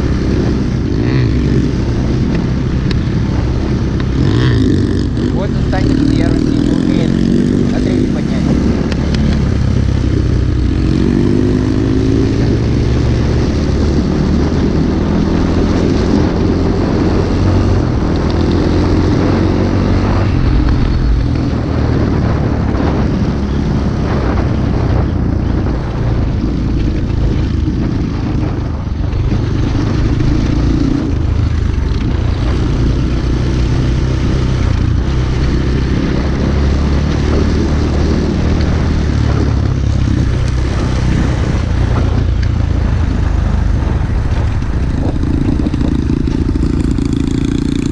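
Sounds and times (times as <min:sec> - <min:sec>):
small motorbike engine running: 0:25.0 - 0:47.9.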